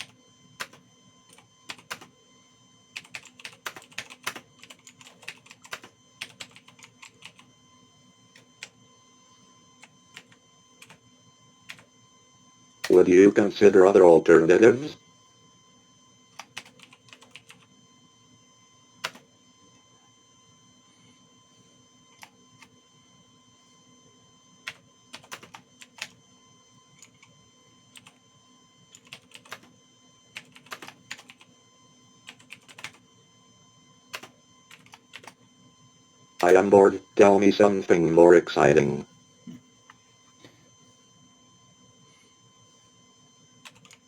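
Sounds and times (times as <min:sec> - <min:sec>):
faint electrical hum: 0:00.0 - 0:44.0
keyboard typing clicks: 0:03.0 - 0:07.4, 0:30.4 - 0:31.4.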